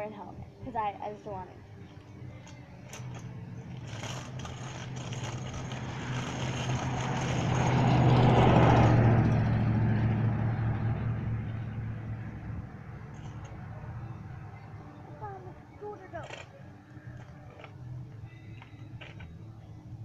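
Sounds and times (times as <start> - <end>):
vehicle driving past: 2.9 - 15.2.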